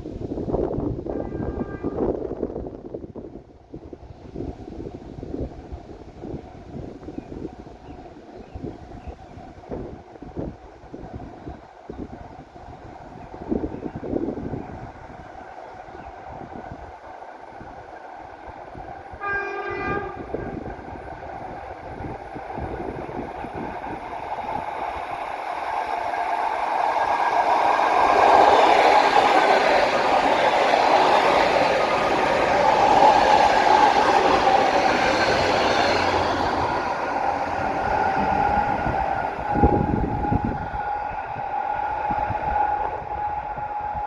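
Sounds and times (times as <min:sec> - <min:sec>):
train rail and wheel noise: 0:00.0 - 0:44.0
steady whine: 0:22.0 - 0:44.0.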